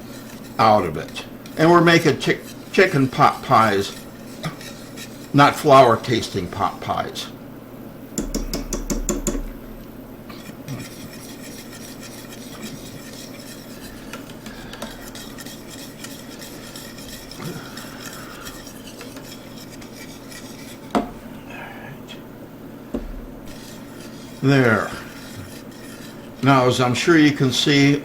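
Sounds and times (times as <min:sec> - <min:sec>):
whisk clicking and scraping pot: 0:00.0 - 0:07.4, 0:08.1 - 0:22.3, 0:22.9 - 0:28.0
sharp knock on pot: 0:08.2 - 0:09.5.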